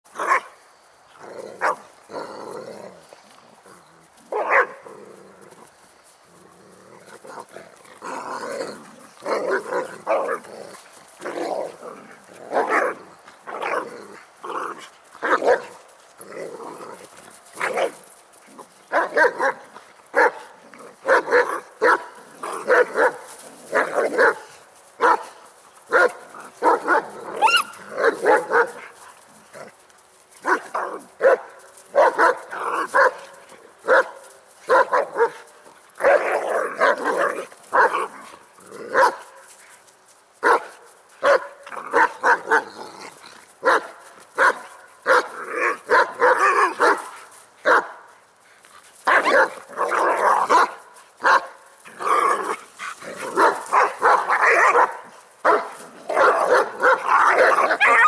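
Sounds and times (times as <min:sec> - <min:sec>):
dogs barking and yelping: 0:04.3 - 0:04.9, 0:17.6 - 0:29.0, 0:43.6 - 0:47.9, 0:49.0 - 0:58.0.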